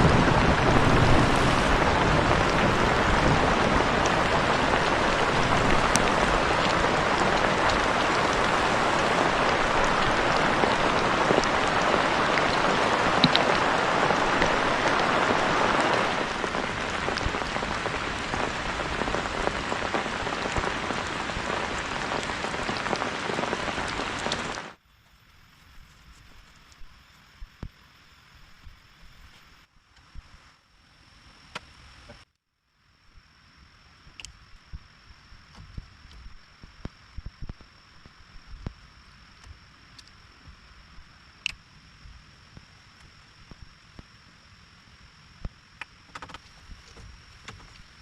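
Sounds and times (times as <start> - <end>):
heavy rain pattering: 0.0 - 24.8.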